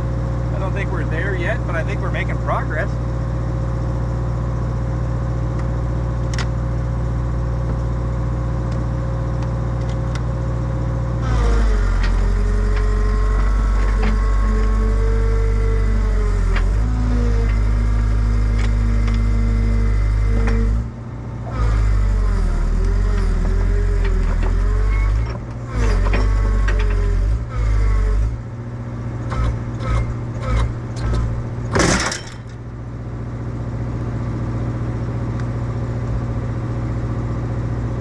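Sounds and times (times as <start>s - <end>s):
excavator diesel engine running: 0.0s - 38.0s
metal clanks: 29.3s - 32.6s.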